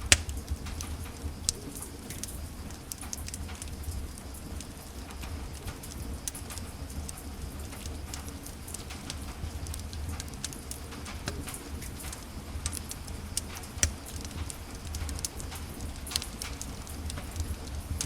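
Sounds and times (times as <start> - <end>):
sharp fire pop: 0.0 - 0.5
fire crackles and snaps: 0.0 - 18.0
low rumble of fire: 0.0 - 18.0.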